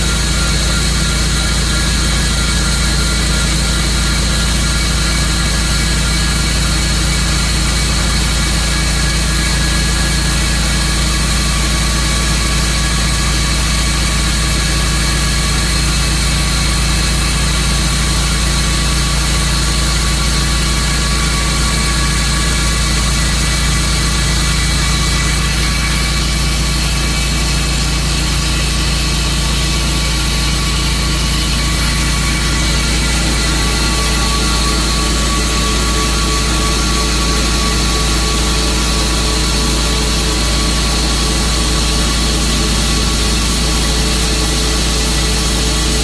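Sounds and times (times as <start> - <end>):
engine droning: 19.8 - 45.5.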